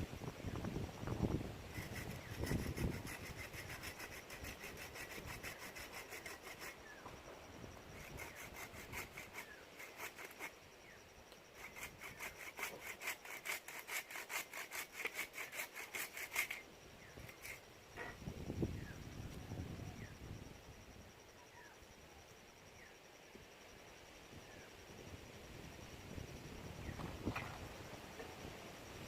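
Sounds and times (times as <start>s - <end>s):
hand saw cutting wood: 1.7s - 6.8s, 8.0s - 10.6s, 11.6s - 16.6s.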